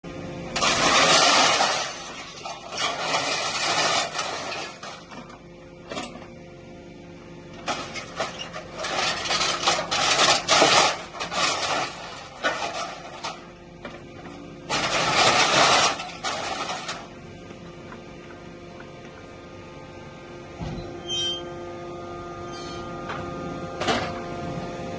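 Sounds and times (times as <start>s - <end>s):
hydraulic power unit hum: 0.0s - 24.9s
metal scrap clattering and crunching: 0.6s - 6.3s, 7.6s - 17.2s.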